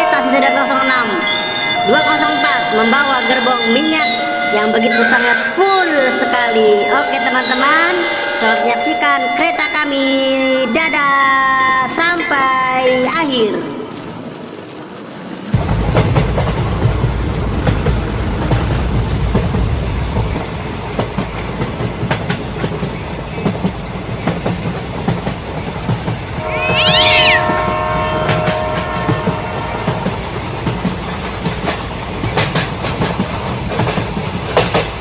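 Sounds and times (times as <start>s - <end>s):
shrill rising and falling squeal: 26.4s - 28.8s
toy train horn tone: 26.4s - 30.2s.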